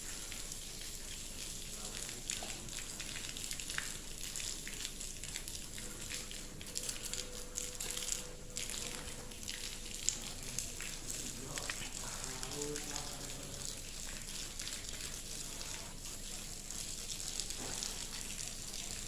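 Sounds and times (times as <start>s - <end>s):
ash rain crackling patter: 0.0s - 18.1s
faint steady tone: 6.7s - 9.4s.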